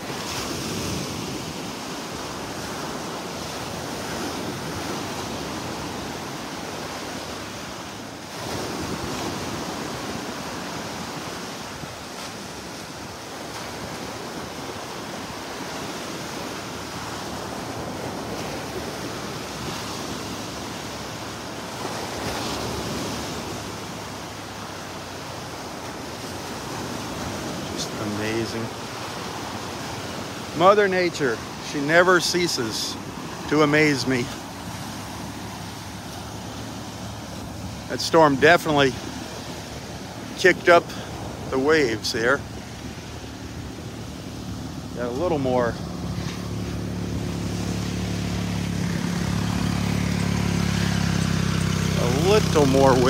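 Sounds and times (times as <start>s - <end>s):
surf washing onto sandy beach: 0.0s - 53.0s.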